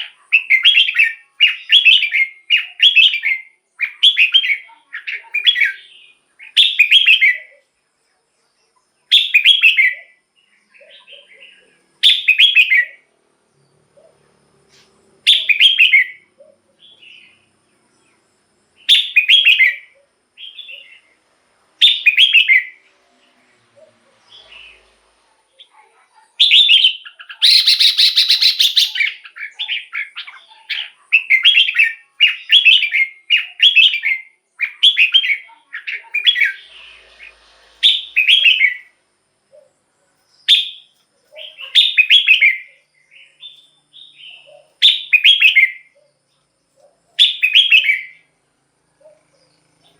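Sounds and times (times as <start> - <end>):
bird singing whistled phrases: 0.0 - 7.6, 9.1 - 10.2, 10.8 - 13.0, 15.3 - 17.4, 18.8 - 21.1, 21.8 - 22.8, 26.4 - 39.0, 40.4 - 46.0, 47.2 - 48.3
harsh rasping bird call: 26.4 - 39.0.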